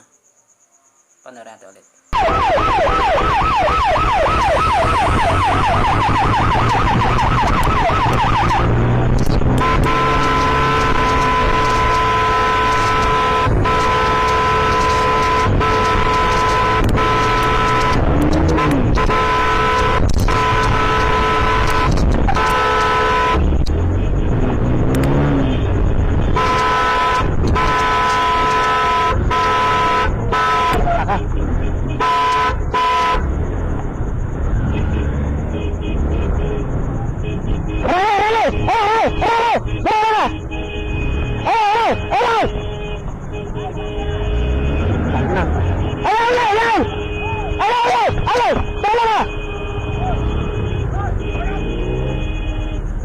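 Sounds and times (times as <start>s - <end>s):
engine and road noise: 2.1s - 53.0s
police siren yelping: 2.2s - 9.0s, 37.8s - 40.6s, 41.4s - 42.6s, 44.9s - 51.9s
vehicle horn honking: 6.6s - 33.3s, 34.6s - 53.0s.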